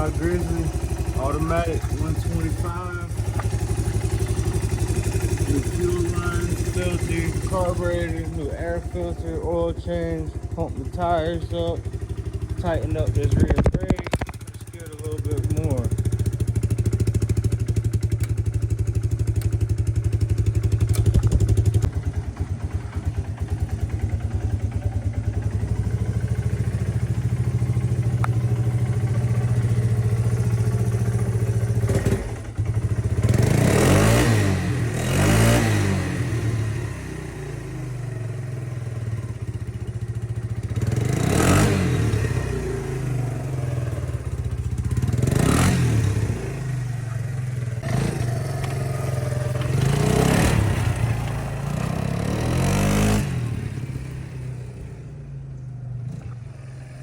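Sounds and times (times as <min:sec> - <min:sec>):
atv engine idling: 0:00.0 - 0:57.0
atv engine revving: 0:00.0 - 0:57.0.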